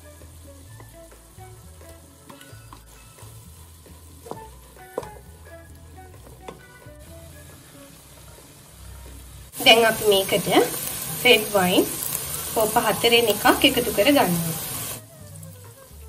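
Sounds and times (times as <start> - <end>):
meat sizzling in a pot: 0.0 - 16.0
soft background music: 0.0 - 16.0
wooden spatula scraping a pot: 1.8 - 9.5.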